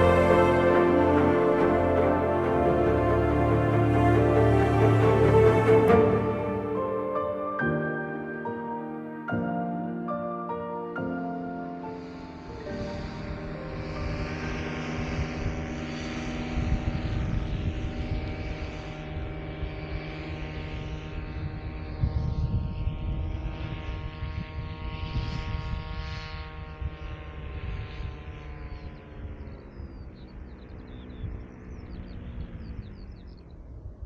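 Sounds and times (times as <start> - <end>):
wind buffeting microphone: 12.7 - 34.0.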